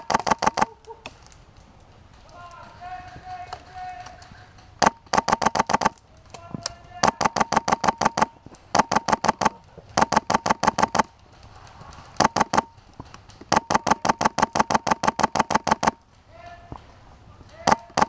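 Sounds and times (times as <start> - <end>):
airsoft guns firing full-auto: 0.0 - 0.8, 2.6 - 6.0, 6.9 - 11.1, 12.1 - 16.1, 17.5 - 18.0.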